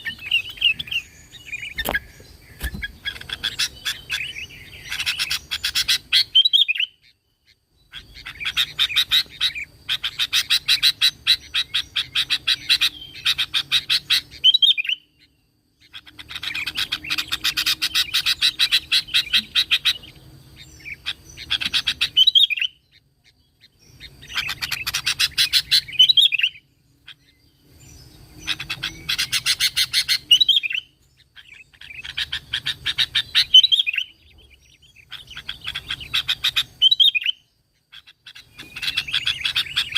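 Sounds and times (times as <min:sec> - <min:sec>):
bulbul singing: 0:00.0 - 0:39.9.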